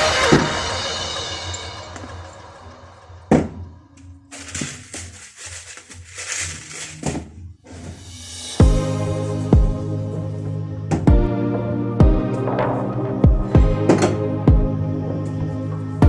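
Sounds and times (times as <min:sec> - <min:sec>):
soft background music: 0:03.3 - 0:16.0
music with strong beat: 0:08.2 - 0:10.2, 0:11.0 - 0:15.0.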